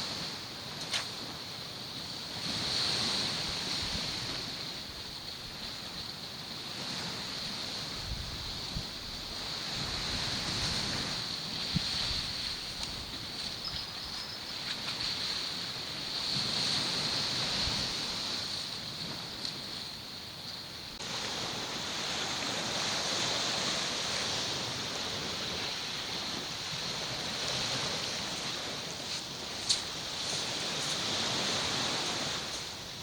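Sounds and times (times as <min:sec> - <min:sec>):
sea surf washing on shore: 0:00.0 - 0:33.0
steady high-pitched hiss: 0:00.0 - 0:33.0
wind buffeting microphone: 0:06.8 - 0:20.2.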